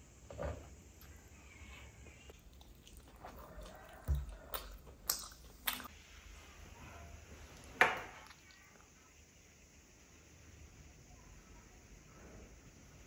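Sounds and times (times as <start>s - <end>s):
chewing mouth sounds: 2.3s - 5.9s
wet clicks and smacks: 2.3s - 5.9s.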